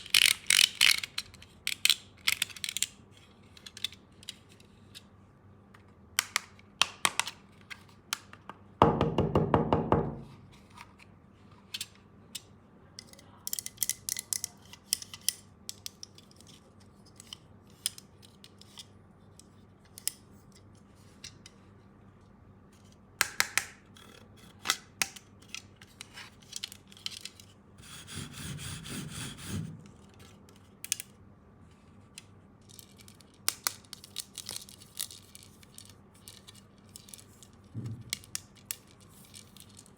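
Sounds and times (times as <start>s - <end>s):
plastic toy clicks and rattles: 0.0s - 4.5s, 11.8s - 18.9s.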